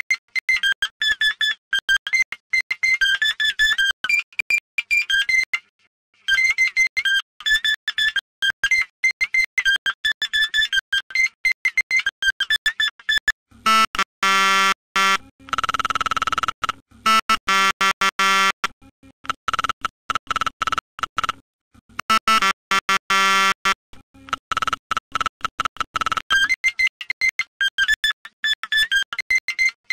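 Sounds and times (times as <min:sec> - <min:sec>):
stuttering buzzing synth chords: 0:13.6 - 0:18.6, 0:22.0 - 0:26.2.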